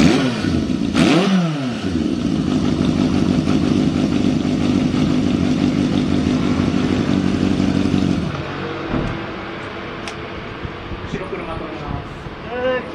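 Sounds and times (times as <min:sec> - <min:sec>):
motorcycle engine idling: 0:01.8 - 0:08.5.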